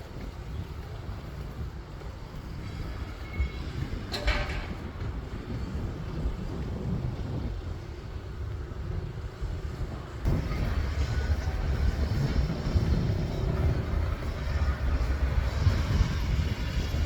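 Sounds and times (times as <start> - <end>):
wind on microphone: 0.0 - 17.0
excavator engine rumbling: 10.0 - 17.0.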